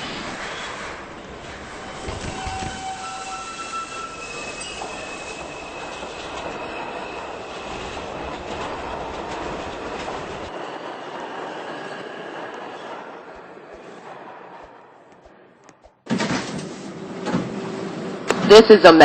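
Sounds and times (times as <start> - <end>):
subway train running on rails: 0.0 - 19.0
high wheel squeal: 2.0 - 8.7.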